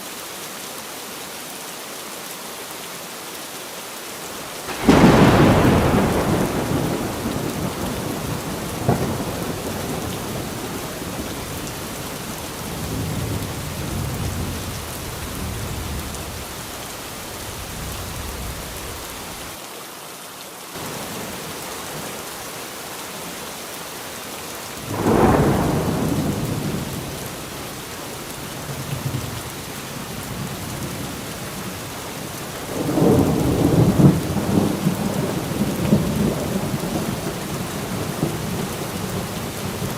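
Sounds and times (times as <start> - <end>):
steady rain falling: 0.0 - 39.9
thunder rolling: 4.7 - 19.6, 24.8 - 27.6, 32.7 - 39.8.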